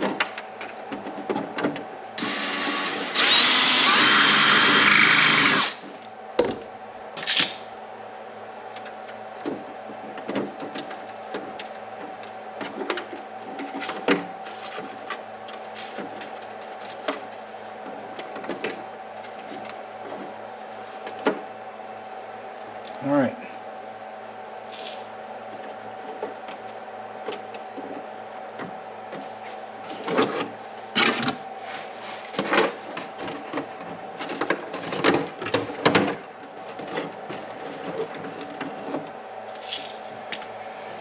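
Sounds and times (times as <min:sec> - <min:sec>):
power drill running: 0:02.2 - 0:05.8.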